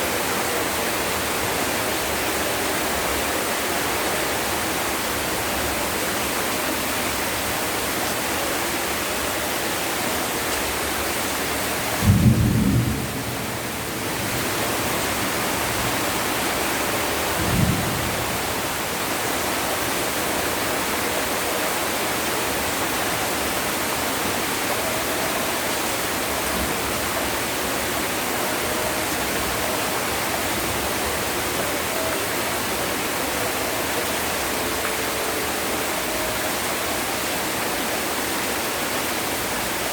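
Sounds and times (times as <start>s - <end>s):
heavy rain: 0.0s - 39.9s
thunder: 12.0s - 14.5s, 17.4s - 18.6s.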